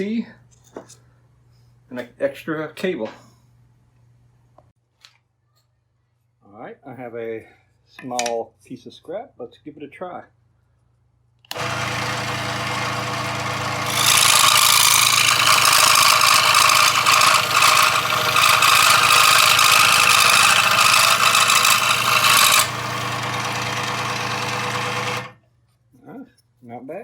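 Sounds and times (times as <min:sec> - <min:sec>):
saw blade cutting wood: 0:11.5 - 0:25.4
scroll saw motor humming: 0:11.5 - 0:25.4.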